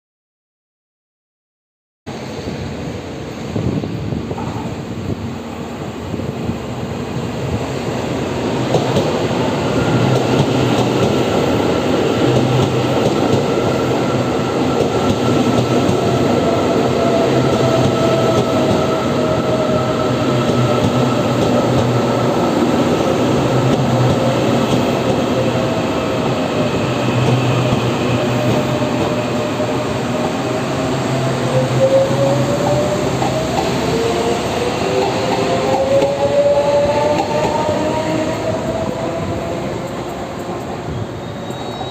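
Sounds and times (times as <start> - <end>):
train rumbling over rails: 2.1 - 41.9
train brake whine: 26.4 - 41.9.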